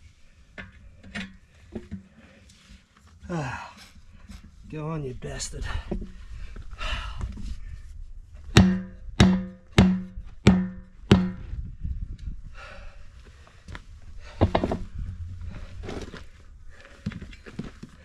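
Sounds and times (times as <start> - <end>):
hammer ringing on metal: 8.6 - 11.4.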